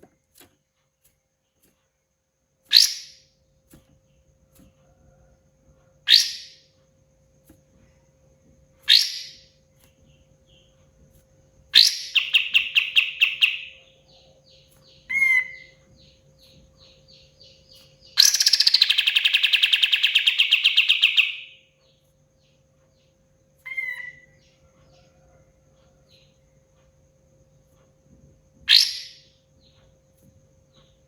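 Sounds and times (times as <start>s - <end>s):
songbird trilling: 2.7s - 3.2s, 6.1s - 6.6s, 8.9s - 9.5s, 11.7s - 21.7s, 23.6s - 24.6s, 28.7s - 29.4s.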